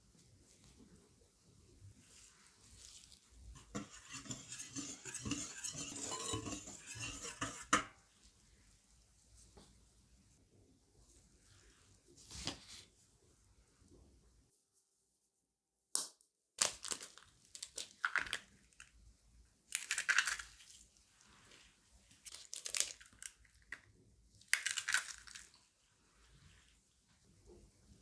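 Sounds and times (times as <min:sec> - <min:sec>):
crunching of dry crumbs: 0:22.3 - 0:23.8.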